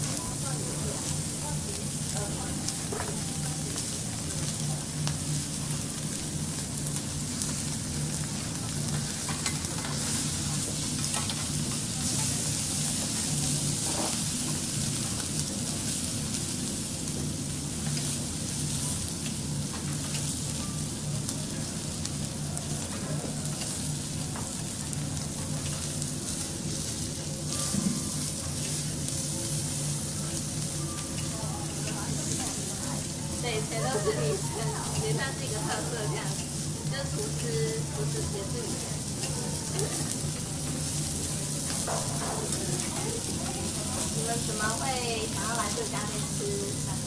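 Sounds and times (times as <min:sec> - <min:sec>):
food sizzling on a griddle: 0:00.0 - 0:47.0.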